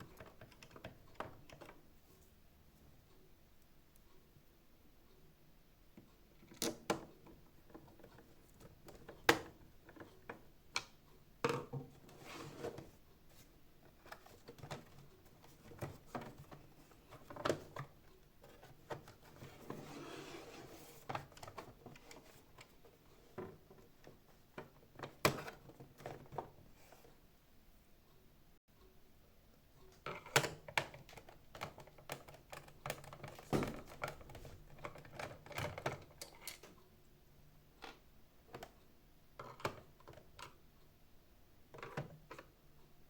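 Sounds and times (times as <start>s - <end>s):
plastic parts clicking and knocking: 0.0s - 1.9s, 6.0s - 19.8s, 21.0s - 26.6s, 29.9s - 36.8s, 37.8s - 40.6s, 41.7s - 42.6s.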